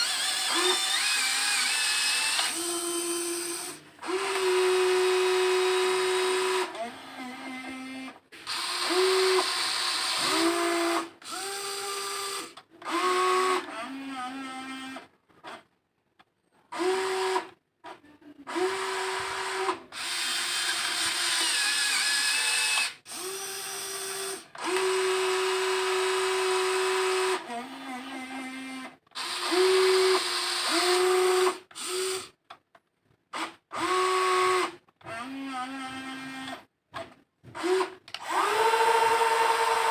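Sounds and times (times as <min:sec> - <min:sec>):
small electric motors whining: 0:00.0 - 0:15.0.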